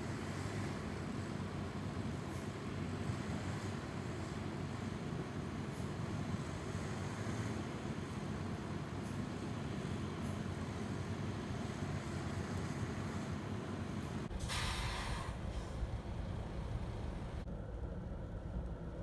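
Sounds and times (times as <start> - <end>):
brief hiss: 14.3 - 15.8.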